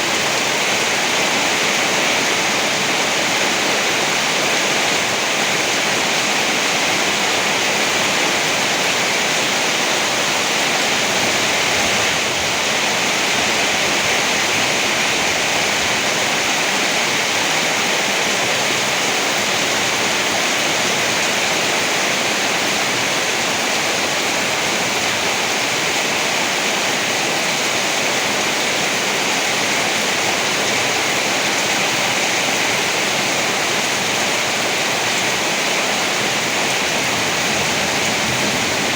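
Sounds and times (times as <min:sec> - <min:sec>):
rain hissing: 0:34.6 - 0:38.9.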